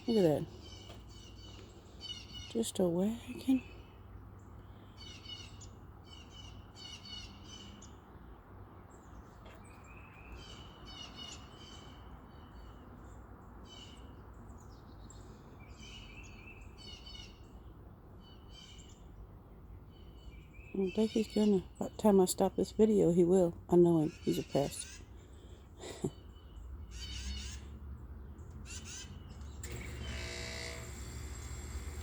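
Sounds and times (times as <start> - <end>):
songbirds chirping and singing: 0.0 - 30.4.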